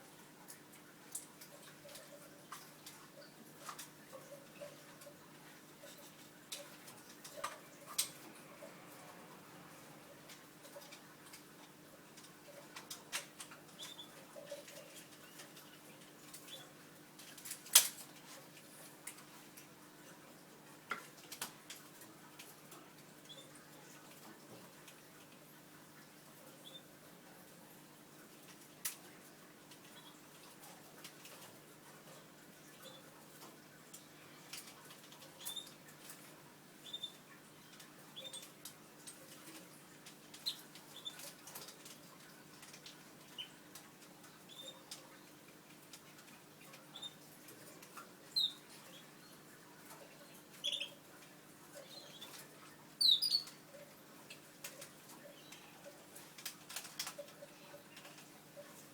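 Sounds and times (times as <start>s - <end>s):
canary chicks peeping: 9.7s - 16.8s, 21.9s - 23.9s, 26.3s - 27.6s, 28.3s - 58.9s.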